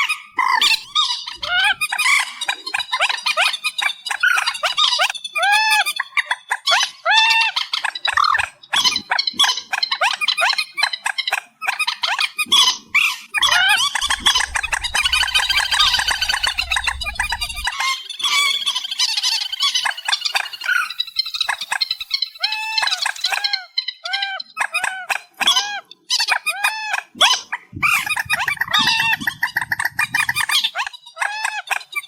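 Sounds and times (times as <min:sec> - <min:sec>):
marsh bird calling: 0:13.4 - 0:17.7, 0:27.8 - 0:30.9
low rumble: 0:13.4 - 0:17.8, 0:27.8 - 0:30.5
harsh clicking bird chatter: 0:27.8 - 0:32.0.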